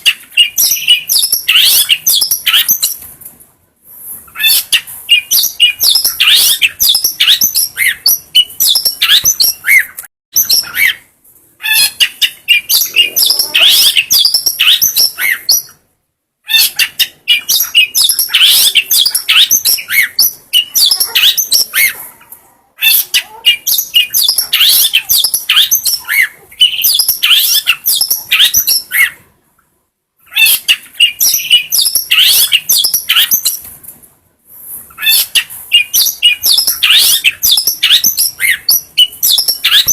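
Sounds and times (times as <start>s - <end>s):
shrike singing: 11.7s - 15.8s.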